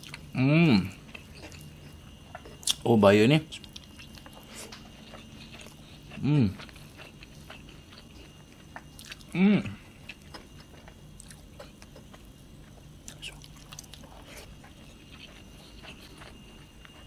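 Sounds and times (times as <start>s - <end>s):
man chewing food: 0.0s - 17.0s
man humming briefly: 6.2s - 6.6s, 9.3s - 9.8s.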